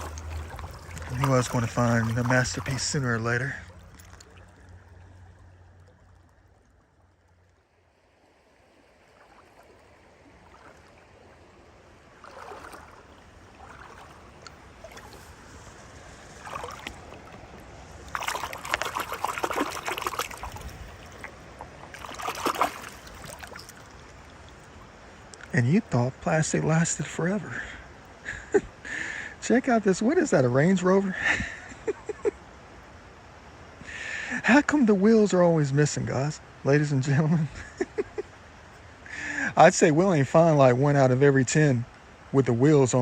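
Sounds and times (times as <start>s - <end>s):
scraping and rustling in wet debris: 0.0s - 6.7s, 12.2s - 24.2s
faint trickling water: 0.0s - 43.0s.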